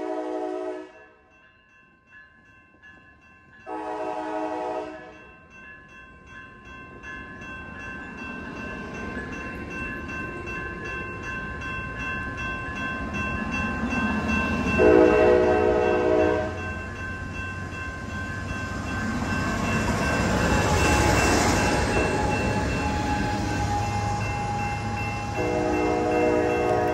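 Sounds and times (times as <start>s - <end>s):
train horn blast: 0.0s - 1.0s, 3.7s - 5.2s, 14.8s - 16.6s, 23.0s - 26.9s
train passing: 0.0s - 26.9s.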